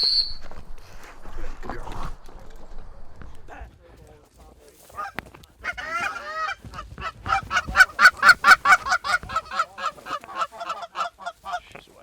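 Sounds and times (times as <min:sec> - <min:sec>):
geese honking: 0:04.9 - 0:11.8.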